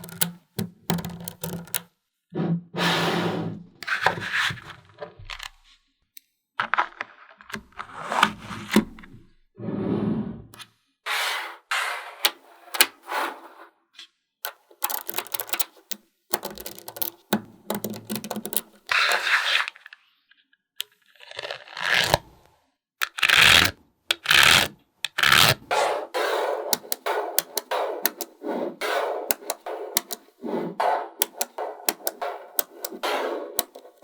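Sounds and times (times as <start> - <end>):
magnetic balls clicking: 0.0 - 1.8, 14.5 - 18.9, 23.0 - 34.0.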